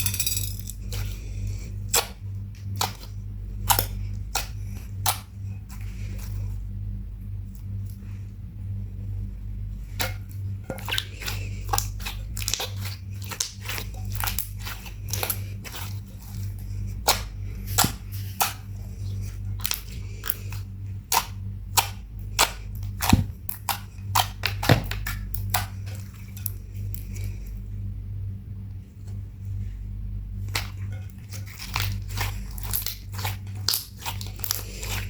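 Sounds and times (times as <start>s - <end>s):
slime clicking and popping: 31.7s - 34.6s.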